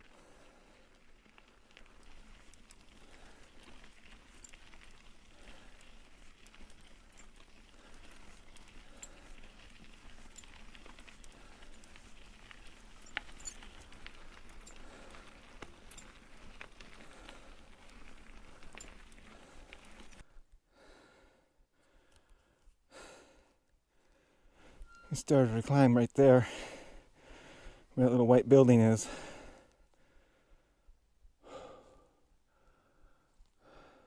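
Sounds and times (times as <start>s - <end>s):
bike tyres crunching on gravel: 0.0s - 20.2s
small clicks and rattles: 0.2s - 20.2s.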